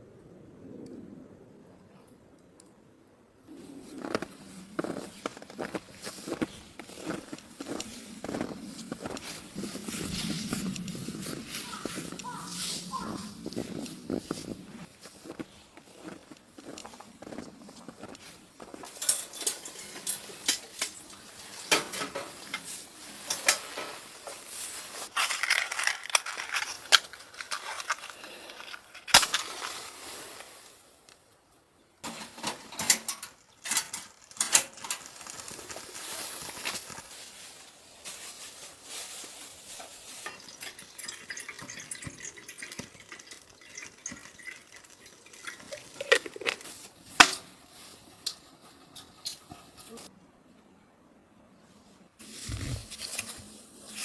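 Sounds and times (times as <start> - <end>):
metal cookware clinking and scraping: 19.0 - 21.0, 32.0 - 35.0.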